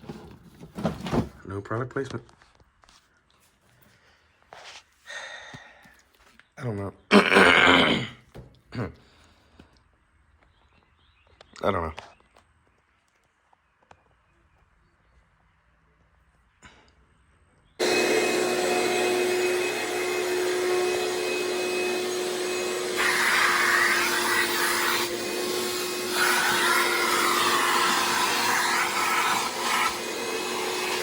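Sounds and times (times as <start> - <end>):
vacuum cleaner running: 17.8 - 31.0.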